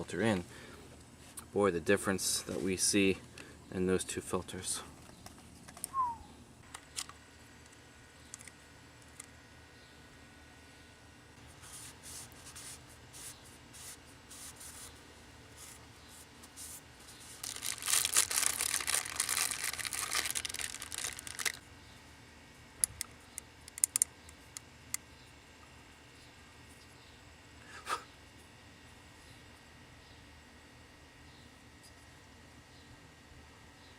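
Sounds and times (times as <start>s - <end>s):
packaging rustling: 17.1s - 21.6s
packaging crinkling and tearing: 17.2s - 21.6s
sharp clicks: 22.8s - 25.0s.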